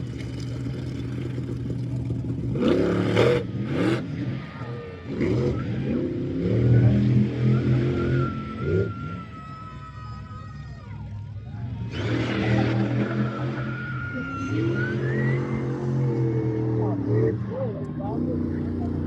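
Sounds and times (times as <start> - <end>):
truck engine revving: 0.0 - 9.2, 11.6 - 19.0.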